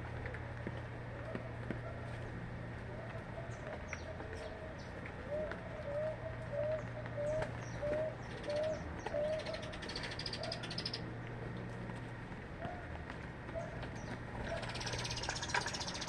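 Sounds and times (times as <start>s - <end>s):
small birds chirping: 3.4s - 11.8s, 13.5s - 16.0s
bird calling low notes: 3.5s - 11.1s
fast high bird trill: 14.6s - 16.0s.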